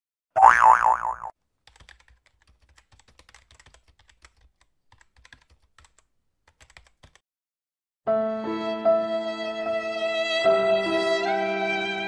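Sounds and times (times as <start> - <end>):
wobbling cartoon boing: 0.4 - 1.3
fast keyboard typing: 1.6 - 7.2.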